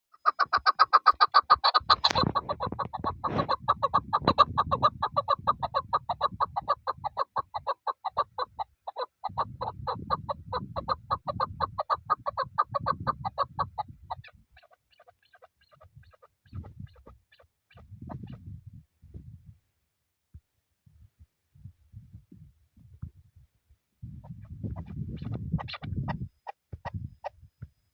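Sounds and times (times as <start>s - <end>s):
partridge clucking call: 0.2s - 18.4s, 24.2s - 26.6s.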